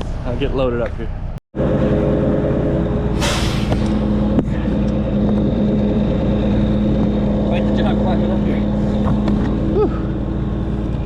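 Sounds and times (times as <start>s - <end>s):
truck diesel engine running: 0.0s - 11.0s
air hissing: 3.1s - 5.2s.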